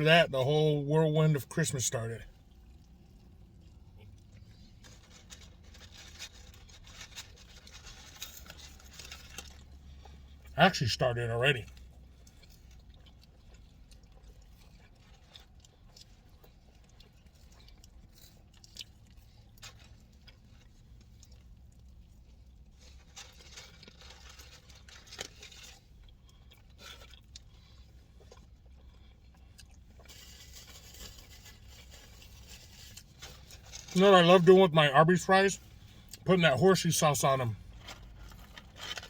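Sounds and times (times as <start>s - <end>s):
low steady hum: 0.0s - 39.0s
quiet chewing: 2.3s - 10.6s, 11.6s - 34.2s
clicks and scrapes handling packaging: 4.3s - 10.2s, 17.2s - 34.1s, 37.7s - 39.0s.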